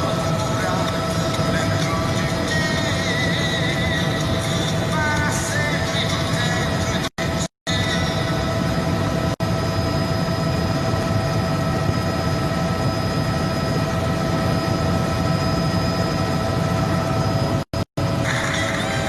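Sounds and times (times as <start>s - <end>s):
helicopter engine and rotor: 0.0s - 19.0s.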